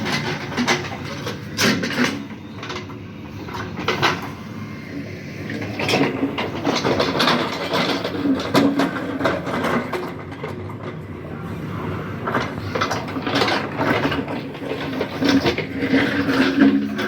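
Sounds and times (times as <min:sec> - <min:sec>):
clanks and scrapes of digging: 0:00.0 - 0:04.4, 0:05.5 - 0:11.0, 0:12.2 - 0:17.0
backhoe diesel engine under load: 0:00.0 - 0:17.0.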